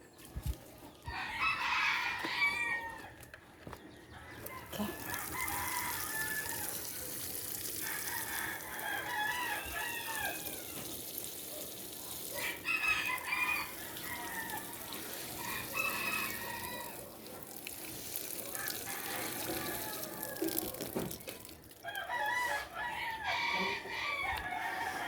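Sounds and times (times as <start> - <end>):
rooster crowing: 1.1 - 3.2, 4.2 - 6.9, 7.8 - 10.8, 12.4 - 17.1, 18.5 - 20.8, 21.8 - 25.0.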